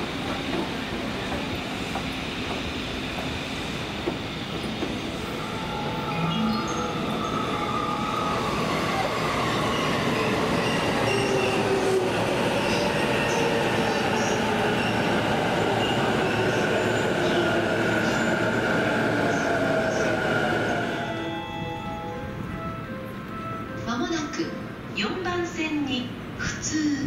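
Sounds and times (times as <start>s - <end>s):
train wheels rumbling on track: 0.0s - 23.5s.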